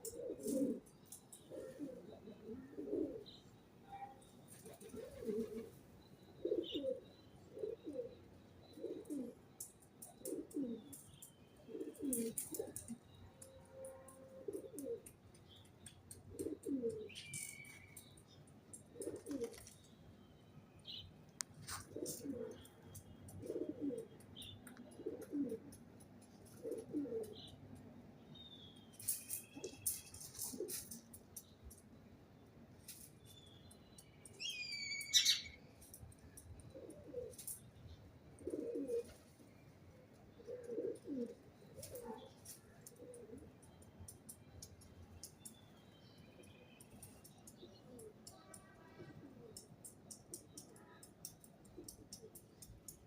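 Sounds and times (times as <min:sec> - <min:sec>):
pigeons cooing: 0:00.0 - 0:03.4, 0:04.6 - 0:05.8, 0:06.4 - 0:09.5, 0:10.1 - 0:11.0, 0:11.6 - 0:13.0, 0:14.3 - 0:15.2, 0:16.2 - 0:17.2, 0:18.8 - 0:19.7, 0:21.7 - 0:24.2, 0:24.8 - 0:25.8, 0:26.4 - 0:27.5, 0:36.7 - 0:37.6, 0:38.3 - 0:39.3, 0:40.3 - 0:43.6
small birds chirping: 0:00.0 - 0:13.6, 0:14.5 - 0:53.0.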